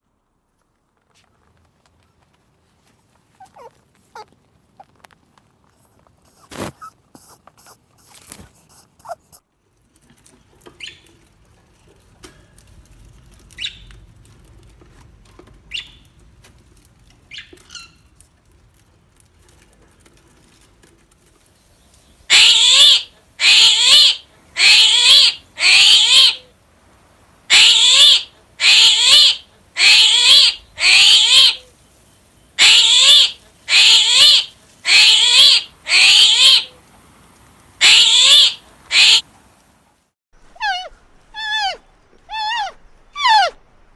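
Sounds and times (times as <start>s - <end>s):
faint high animal squeaks: 22.3s - 26.5s, 27.5s - 31.7s, 32.6s - 36.7s, 37.8s - 39.2s, 40.5s - 43.6s
loud shrill falling animal calls: 22.3s - 26.5s, 27.5s - 31.8s, 32.6s - 36.8s, 37.8s - 39.3s.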